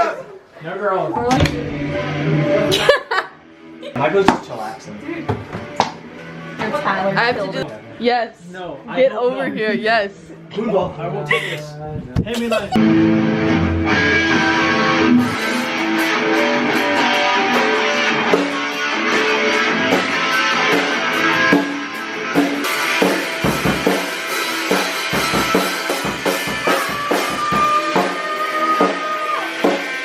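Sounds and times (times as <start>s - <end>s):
guitar: 0.0s - 30.0s
drum kit: 12.4s - 30.0s.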